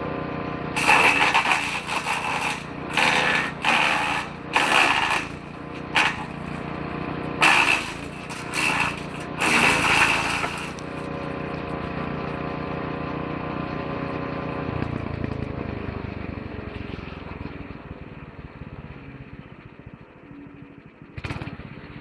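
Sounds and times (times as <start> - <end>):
woodchipper engine running: 0.0 - 22.0
branches being chipped: 0.8 - 11.4.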